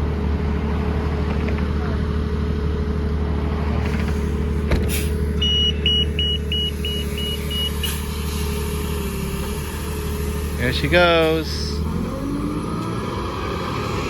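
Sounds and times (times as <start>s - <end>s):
bus engine humming: 0.0s - 14.0s
short high beeps: 5.4s - 7.7s.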